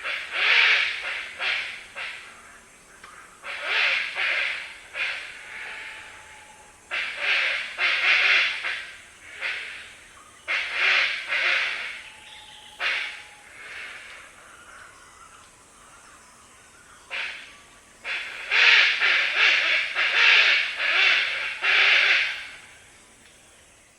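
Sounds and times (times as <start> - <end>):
hornbill harsh growling calls: 3.4 - 12.1, 12.7 - 15.0.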